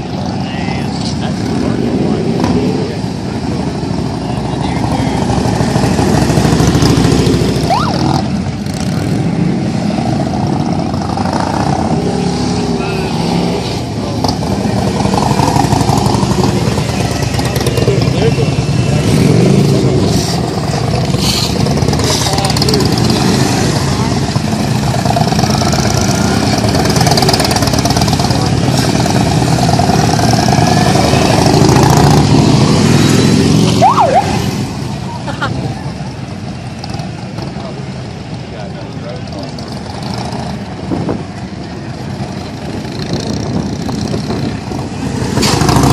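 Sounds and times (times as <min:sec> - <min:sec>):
motorcycle engines running: 0:00.0 - 0:45.9.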